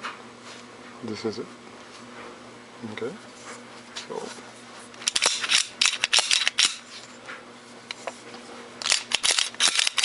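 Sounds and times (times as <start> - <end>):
pistol action metallic clicks: 8.8 - 10.0.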